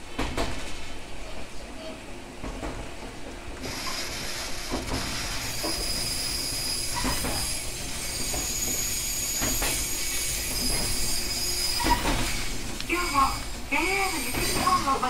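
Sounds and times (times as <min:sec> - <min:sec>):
train rumbling: 0:00.0 - 0:15.0
high-pitched wheel squeal: 0:05.4 - 0:12.4.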